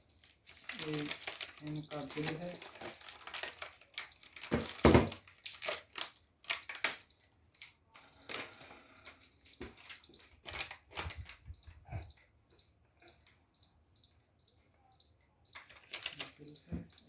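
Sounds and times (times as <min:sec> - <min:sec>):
paper and packaging crinkling: 0:00.0 - 0:11.9, 0:15.6 - 0:17.0.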